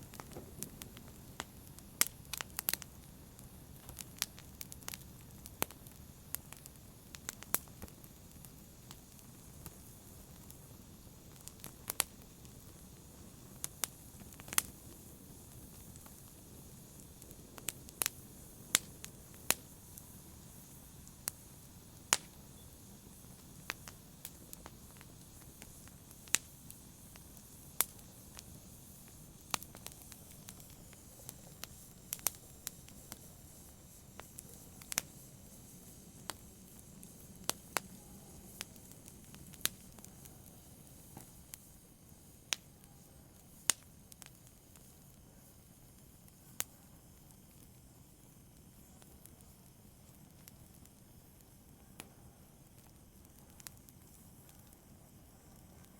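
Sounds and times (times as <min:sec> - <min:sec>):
wood fire crackling: 0:00.0 - 0:55.9.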